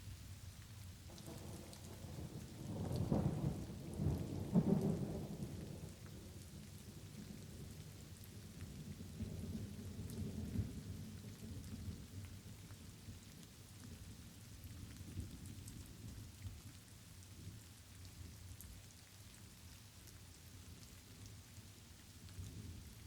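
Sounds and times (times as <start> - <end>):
light rain falling: 0.0 - 23.0
low roll of thunder: 1.1 - 13.2.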